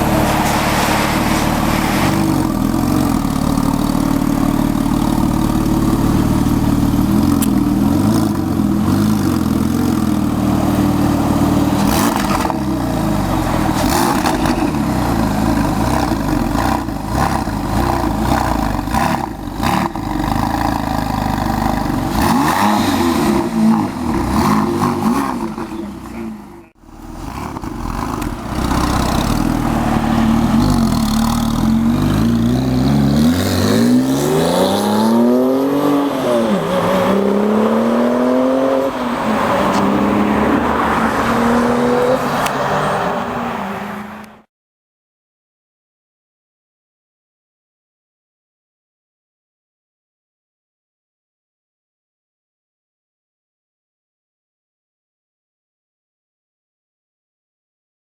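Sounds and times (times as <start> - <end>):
car engine revving: 0.0 - 44.4.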